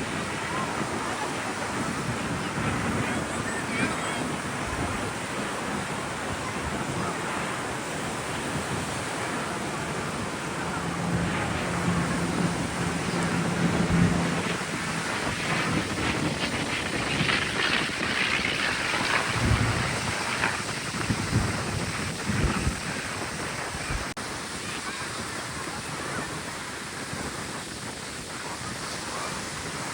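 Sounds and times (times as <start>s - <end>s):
surf: 0.0s - 29.9s
wind buffeting microphone: 0.0s - 29.9s
low steady hum: 9.4s - 20.5s.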